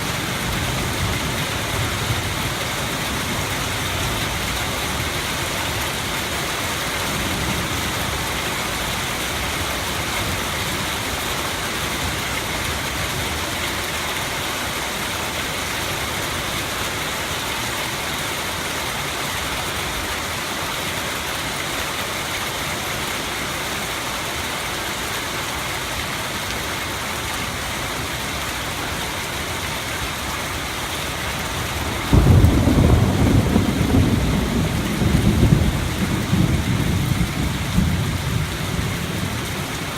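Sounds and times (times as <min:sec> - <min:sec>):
heavy rain hissing: 0:00.0 - 0:39.9
thunder rumbling: 0:31.5 - 0:39.9.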